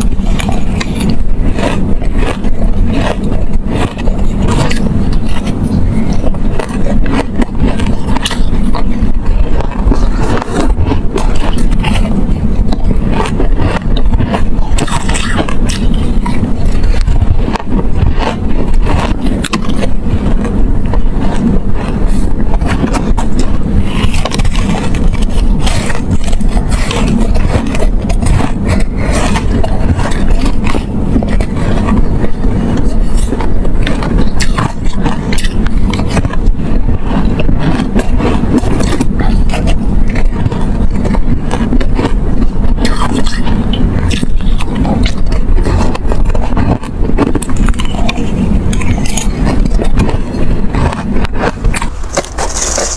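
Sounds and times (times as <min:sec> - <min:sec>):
chewing ice crunches: 0:00.0 - 0:52.9
heavy low rumble: 0:00.0 - 0:52.9.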